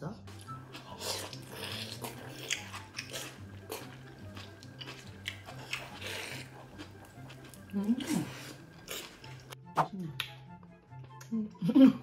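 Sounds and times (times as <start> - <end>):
biting and chewing mouth sounds: 0.3 - 9.6.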